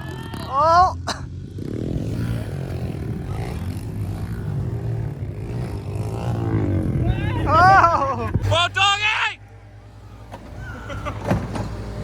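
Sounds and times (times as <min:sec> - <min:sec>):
engine running at low revs: 0:00.0 - 0:08.8, 0:09.4 - 0:12.0.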